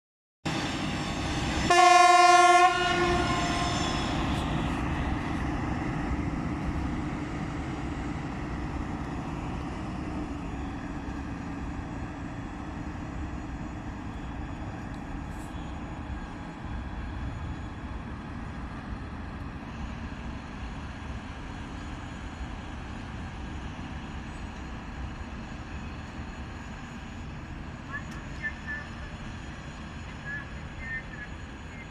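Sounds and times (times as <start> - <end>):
rail vehicle engine and wheels: 0.5 - 31.9
train horn blast: 1.7 - 4.2.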